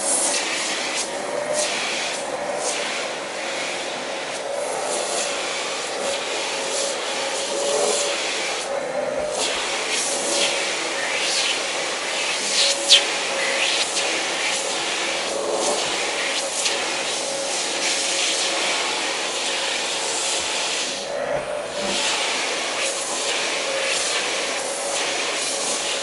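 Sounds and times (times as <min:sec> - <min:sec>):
vacuum cleaner running: 0:00.0 - 0:26.0
vacuum nozzle rubbing fur: 0:00.0 - 0:26.0.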